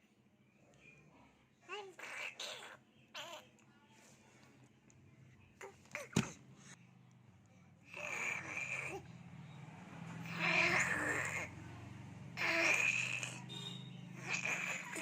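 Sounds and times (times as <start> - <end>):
baby making wheezy sounds: 12.4 - 13.4, 14.2 - 15.0.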